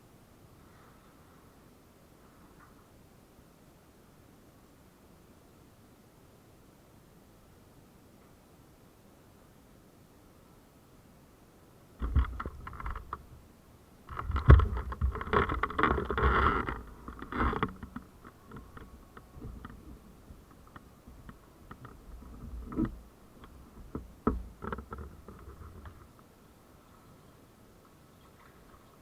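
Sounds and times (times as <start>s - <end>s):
knocks and clicks: 12.0s - 13.3s, 14.1s - 26.0s
rustling: 14.0s - 29.0s.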